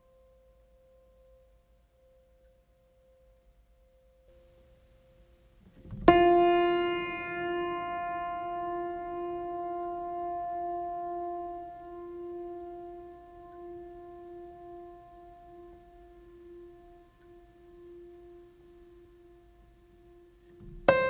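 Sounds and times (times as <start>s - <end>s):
piano-like keyboard note: 5.9s - 21.0s.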